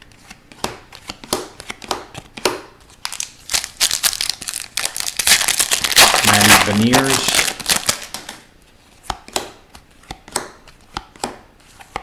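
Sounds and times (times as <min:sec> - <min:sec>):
trading cards crinkling and rustling: 0:02.9 - 0:08.5.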